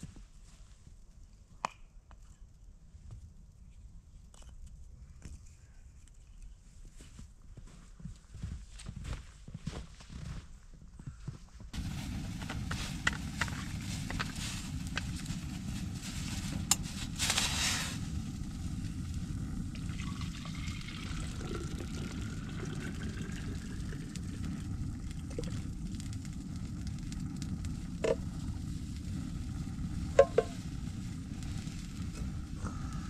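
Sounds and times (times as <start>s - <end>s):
fire crackles: 11.7s - 33.0s
food sizzling over campfire: 11.8s - 33.0s.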